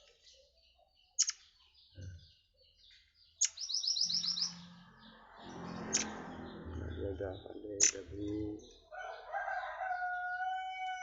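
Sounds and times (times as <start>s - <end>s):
high bird chirps: 0.0s - 11.0s
bird calling with sharp notes: 1.0s - 8.8s.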